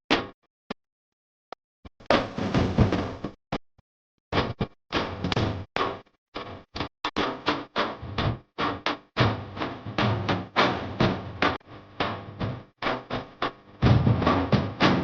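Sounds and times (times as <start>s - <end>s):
sharp drum hits: 13.8s - 15.0s.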